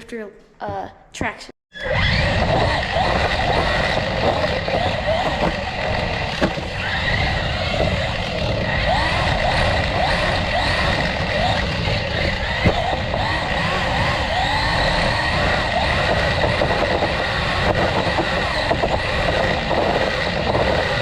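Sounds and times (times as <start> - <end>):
rc car electric motor whining: 1.7 - 21.0
sharp knocks: 6.3 - 6.8.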